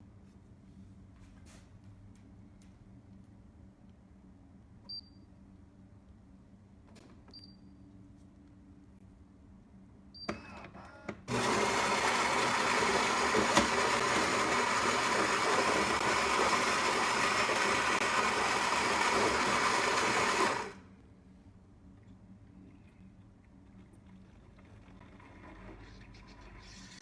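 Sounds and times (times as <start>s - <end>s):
coffee grinder grinding beans: 11.3s - 20.8s.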